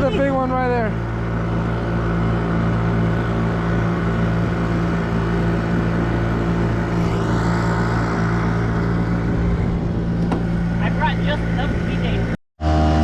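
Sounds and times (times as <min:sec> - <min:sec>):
boat motor droning: 0:00.0 - 0:13.0.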